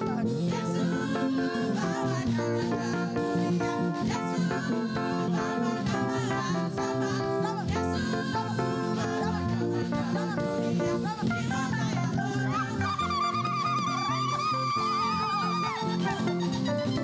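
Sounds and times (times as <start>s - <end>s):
bass guitar: 0.0s - 17.0s
plucked guitars: 0.0s - 17.0s.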